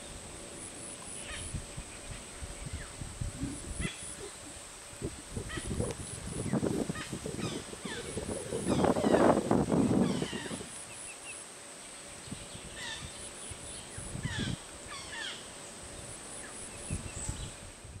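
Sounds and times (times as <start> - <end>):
birds chirping and whistling: 5.6 - 10.7.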